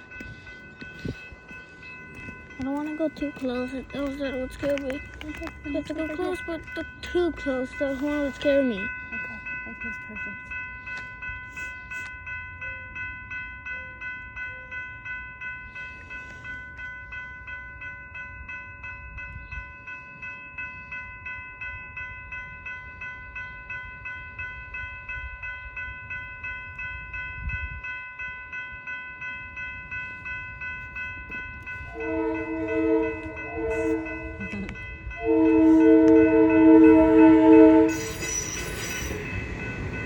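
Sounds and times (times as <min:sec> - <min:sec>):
crossing warning bell ringing: 0:00.0 - 0:40.0
train horn honks: 0:31.9 - 0:38.6.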